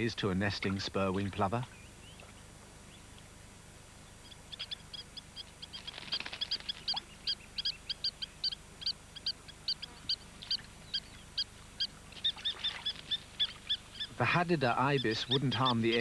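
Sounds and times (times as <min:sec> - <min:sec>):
plover alarm calls: 0:04.2 - 0:16.0.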